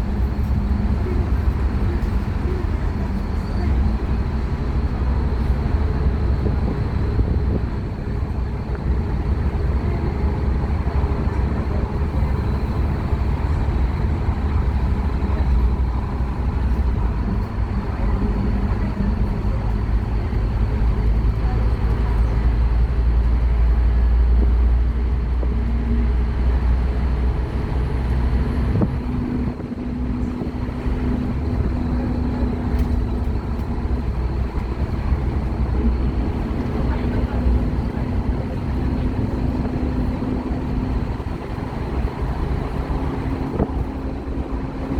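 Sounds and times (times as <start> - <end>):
bus diesel engine droning: 0.0 - 44.9.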